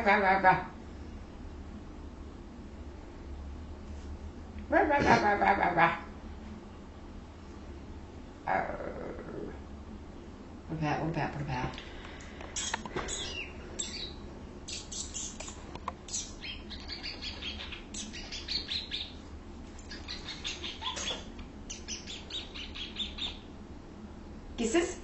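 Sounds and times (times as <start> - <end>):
cockatiel chirping: 12.6 - 19.2, 19.8 - 23.5.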